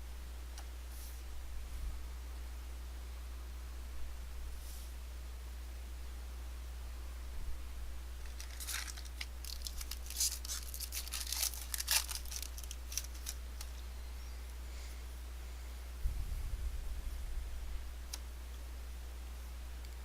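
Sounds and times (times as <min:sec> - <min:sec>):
low hum: 0:00.0 - 0:20.0
foil wrapper crinkling: 0:08.2 - 0:13.8.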